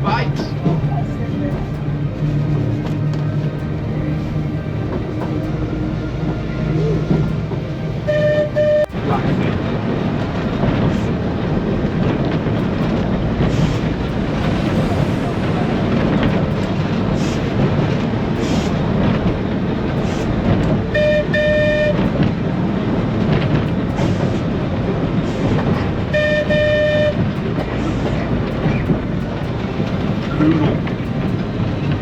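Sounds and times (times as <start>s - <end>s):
tram horn toots: 0.0s - 32.0s
tram rumbling on track: 0.0s - 32.0s.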